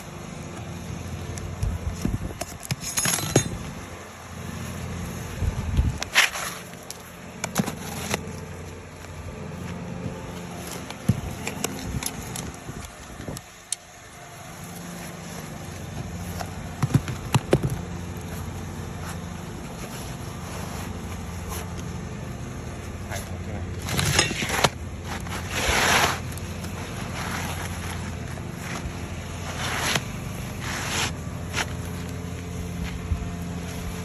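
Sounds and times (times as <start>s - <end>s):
motor hum: 0.0s - 34.0s
scraping tool prying shingles: 23.7s - 27.8s.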